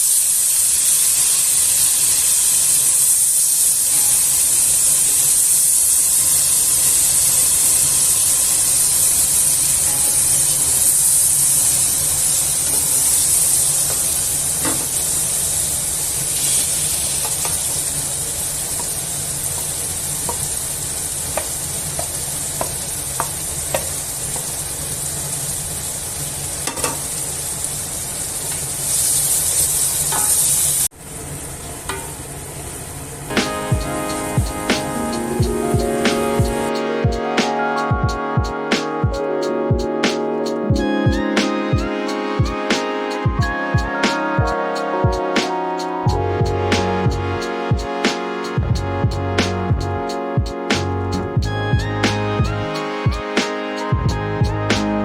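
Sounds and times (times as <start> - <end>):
oil sizzling in a pan: 0.0 - 36.7.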